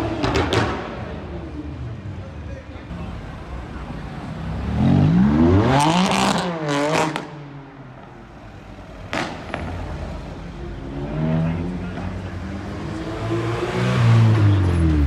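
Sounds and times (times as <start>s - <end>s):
car engine revving: 4.1s - 7.5s, 8.9s - 15.0s
sharp crack: 9.0s - 9.8s.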